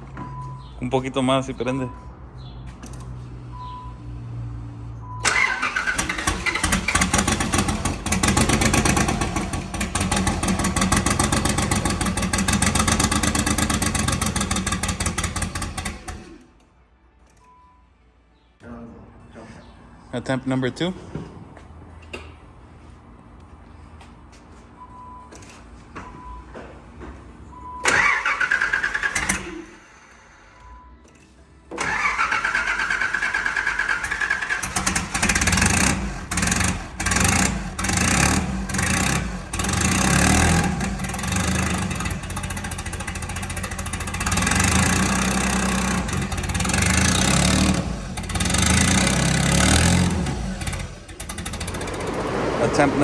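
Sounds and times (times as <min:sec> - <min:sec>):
faint beeps: 0:00.1 - 0:02.5, 0:03.4 - 0:05.2, 0:17.3 - 0:18.5, 0:30.5 - 0:31.3
starter motor cranking: 0:05.2 - 0:16.5, 0:27.8 - 0:30.2, 0:31.8 - 0:52.8.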